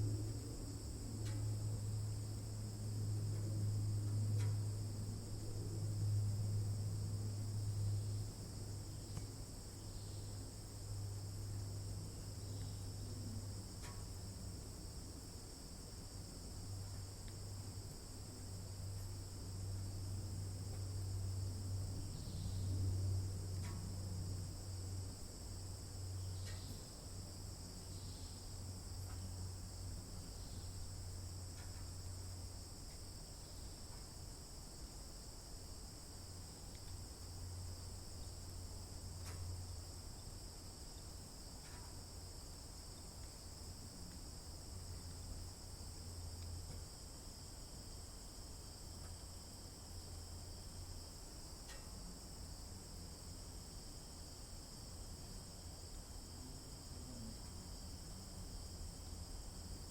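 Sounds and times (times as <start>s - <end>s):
crickets trilling: 0.0s - 59.9s
faint ticks: 1.2s - 1.7s, 3.2s - 4.8s, 8.9s - 9.4s, 12.5s - 14.7s, 16.6s - 17.8s, 20.6s - 22.8s, 23.5s - 24.5s, 25.6s - 34.2s, 36.1s - 45.3s, 45.9s - 47.0s, 49.0s - 49.3s, 50.9s - 52.2s.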